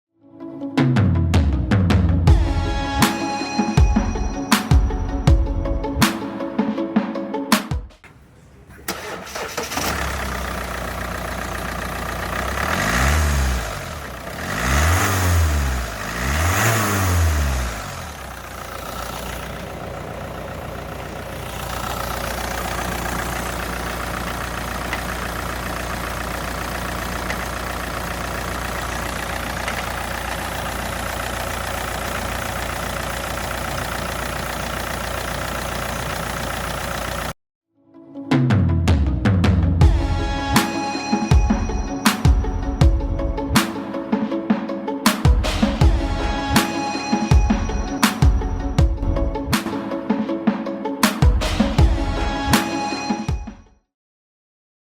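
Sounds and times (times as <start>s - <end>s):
car engine starting and revving: 8.0s - 37.4s.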